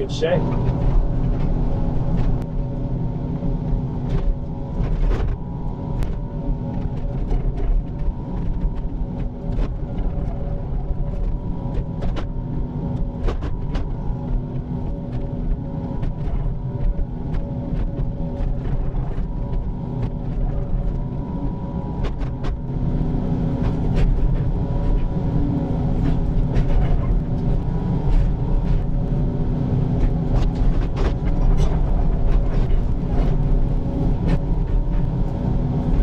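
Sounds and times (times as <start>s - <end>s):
excavator engine running: 0.0s - 36.0s.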